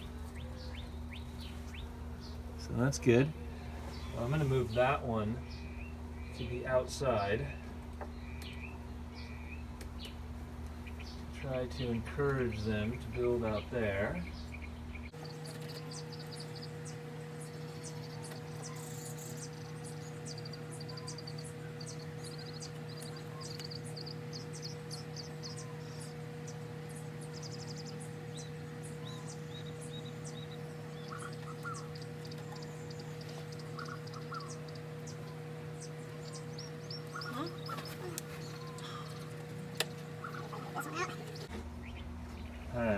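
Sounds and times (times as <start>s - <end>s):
honeybees humming: 0.0s - 42.9s
small birds chirping: 0.0s - 42.9s.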